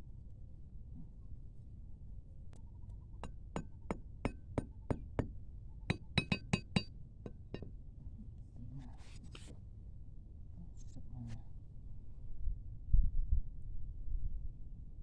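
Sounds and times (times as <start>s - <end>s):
sharp clinking taps: 5.9s - 7.7s.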